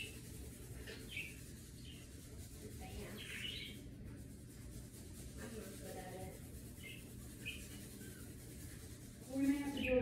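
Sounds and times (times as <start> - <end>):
bird chirping: 0.0 - 3.9, 6.6 - 8.8.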